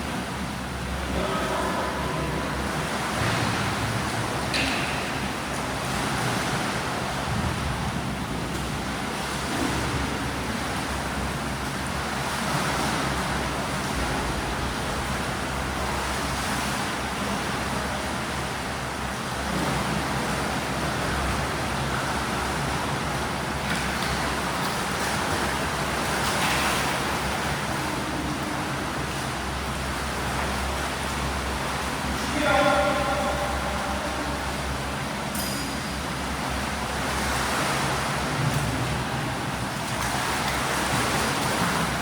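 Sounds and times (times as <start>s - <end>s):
low hum: 13.1s - 19.4s, 20.9s - 37.1s.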